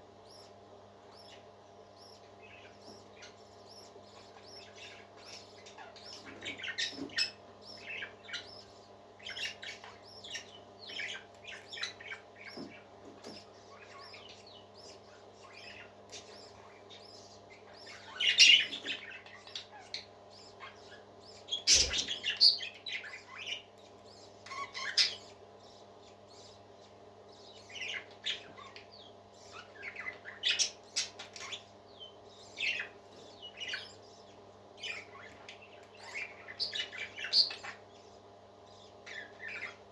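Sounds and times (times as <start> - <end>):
faint steady hum: 0.0 - 39.9
parakeets chirping and chattering: 0.0 - 39.9
parakeet squawks: 17.5 - 25.3.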